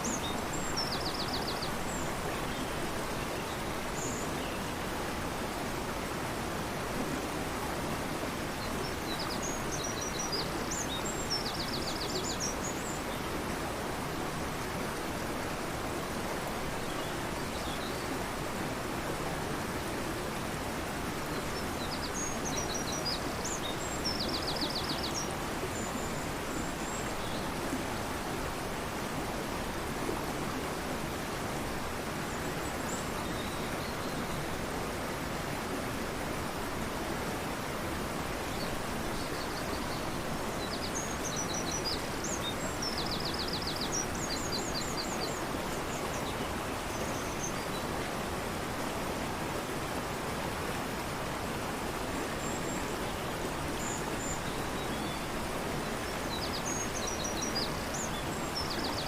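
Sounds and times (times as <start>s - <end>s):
river rushing: 0.0s - 59.0s.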